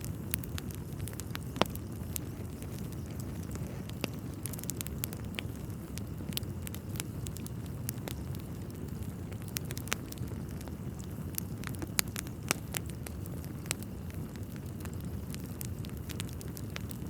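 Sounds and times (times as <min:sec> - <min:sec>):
burning logs popping and snapping: 0:00.0 - 0:17.0
wood fire crackling: 0:00.0 - 0:17.0.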